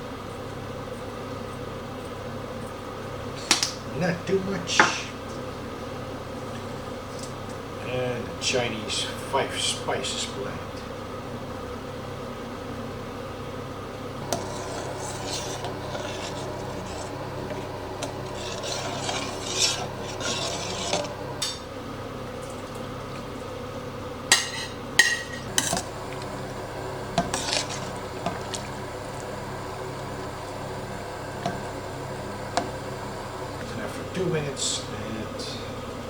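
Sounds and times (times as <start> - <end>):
utensil scraping metal pot: 14.2 - 21.7, 24.3 - 34.7.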